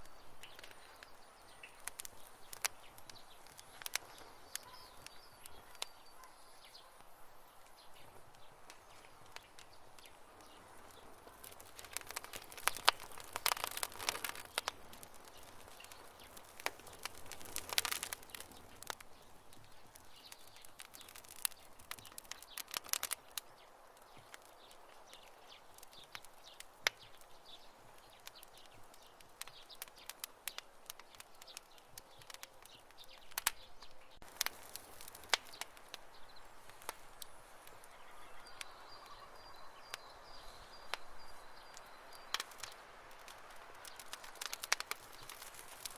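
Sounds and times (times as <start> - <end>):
campfire crackling and popping: 0.0 - 45.9.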